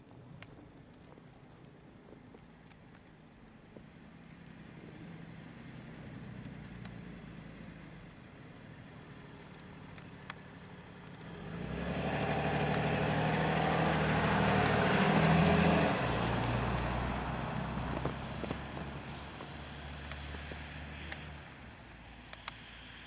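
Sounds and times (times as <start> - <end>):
large vehicle engine passing: 11.3 - 22.0.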